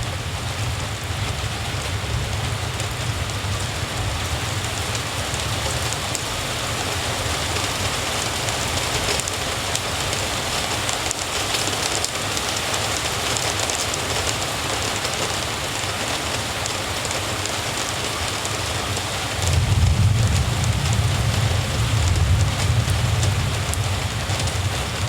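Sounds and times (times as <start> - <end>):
steady rain falling: 0.0 - 25.0
low rumble: 19.5 - 25.0.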